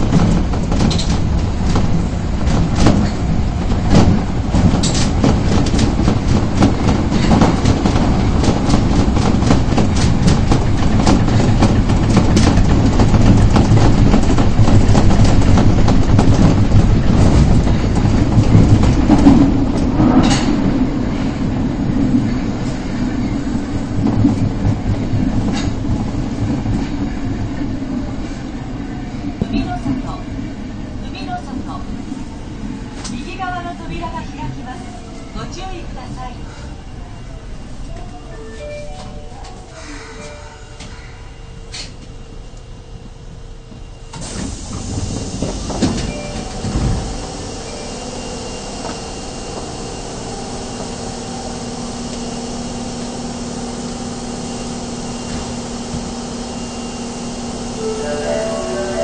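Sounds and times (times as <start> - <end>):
wheels clicking over rail joints: 0.0 - 20.6
subway train rumbling: 0.0 - 59.0.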